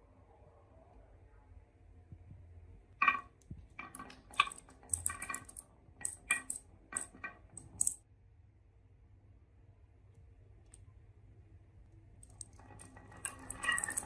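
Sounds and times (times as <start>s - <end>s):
marbles clacking down a track: 3.0s - 8.0s, 12.3s - 14.0s.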